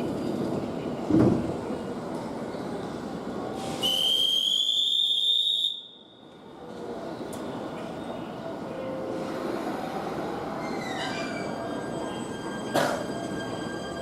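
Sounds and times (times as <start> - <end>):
trains rumbling: 0.0 - 14.0
high whistle blast: 3.7 - 6.0.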